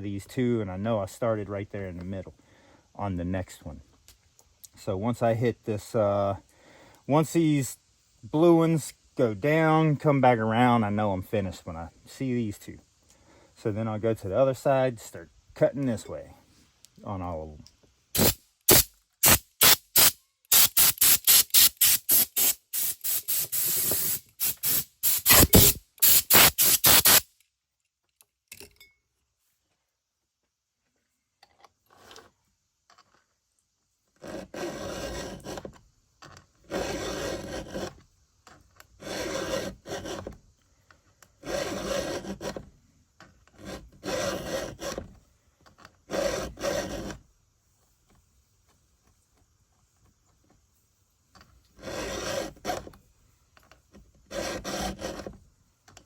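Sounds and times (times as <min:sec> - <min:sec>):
hand file strokes on chain: 0:18.2 - 0:27.2, 0:34.2 - 0:35.8, 0:36.6 - 0:38.1, 0:38.9 - 0:40.4, 0:41.4 - 0:42.6, 0:43.5 - 0:45.1, 0:46.1 - 0:47.2, 0:51.7 - 0:52.9, 0:54.2 - 0:55.4.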